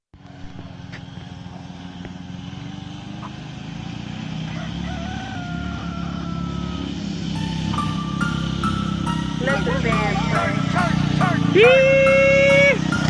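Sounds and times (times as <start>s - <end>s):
rooster crowing: 4.5s - 6.9s.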